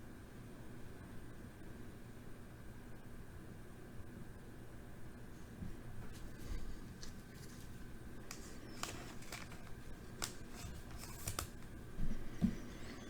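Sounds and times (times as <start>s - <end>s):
trading cards sliding and rustling: 6.1s - 13.0s.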